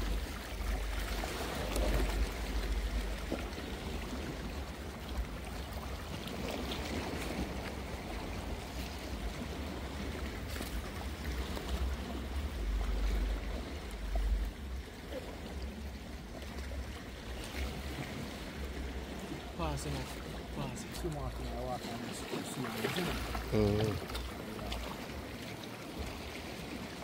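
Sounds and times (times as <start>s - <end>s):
low rumble: 0.0s - 5.5s
water sloshing at shoreline: 0.0s - 27.0s.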